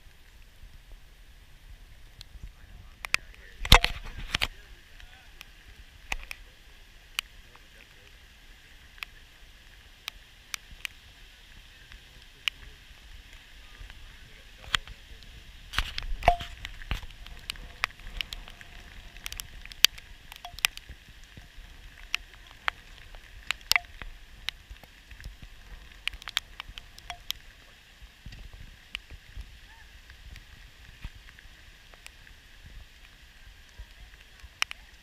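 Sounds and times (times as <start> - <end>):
hiss of falling rain: 0.0 - 35.0
raindrops ticking on camera housing: 0.0 - 35.0.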